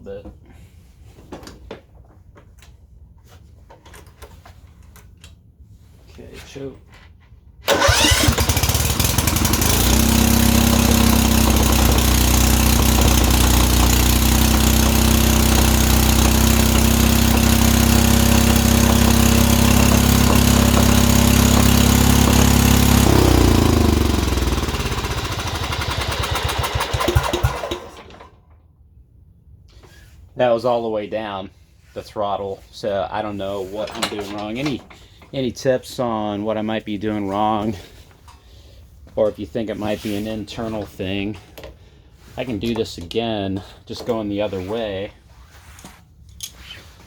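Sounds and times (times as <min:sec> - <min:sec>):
riding mower engine running: 0:07.7 - 0:28.5.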